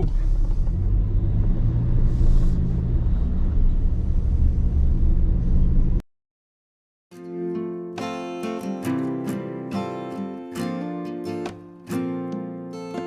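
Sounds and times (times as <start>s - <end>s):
truck engine and road rumble: 0.0s - 6.0s
acoustic guitar music: 7.1s - 13.0s.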